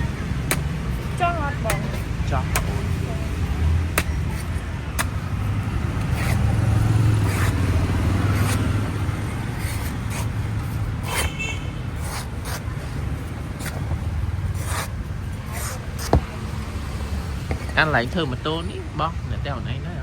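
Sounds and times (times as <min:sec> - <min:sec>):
clicks and scrapes: 0:06.0 - 0:07.7, 0:08.3 - 0:08.8, 0:09.5 - 0:11.4, 0:14.5 - 0:16.3.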